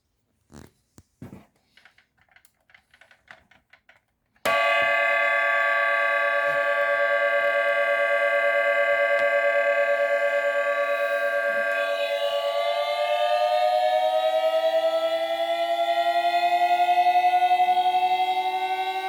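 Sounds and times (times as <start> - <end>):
buzzy synthesized toy engine tone: 4.5 - 19.0.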